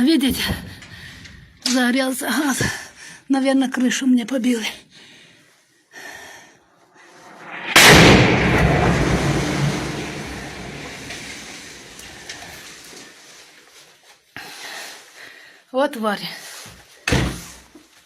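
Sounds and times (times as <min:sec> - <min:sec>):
loud blast with deep rumble: 0:07.2 - 0:12.5.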